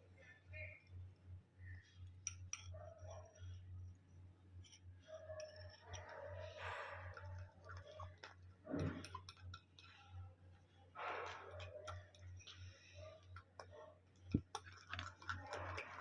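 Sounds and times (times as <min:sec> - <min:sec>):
small clicks and taps: 0:11.0 - 0:16.0.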